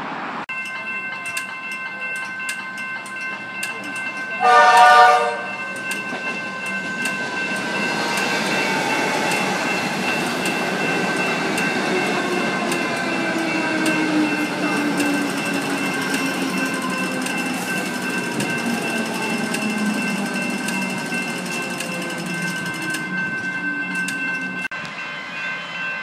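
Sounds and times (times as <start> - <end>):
level crossing bells ringing: 0.5 - 26.0
train horn blast: 4.4 - 5.5.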